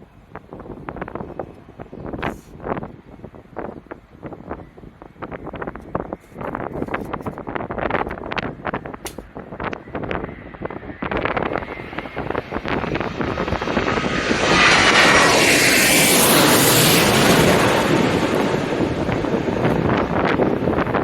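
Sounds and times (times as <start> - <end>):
wind buffeting microphone: 0.0 - 21.0
jet airliner passing overhead: 8.5 - 21.0.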